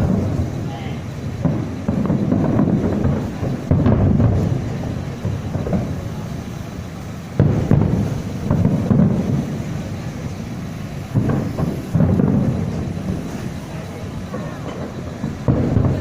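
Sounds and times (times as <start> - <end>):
fireworks booming: 0.0 - 16.0.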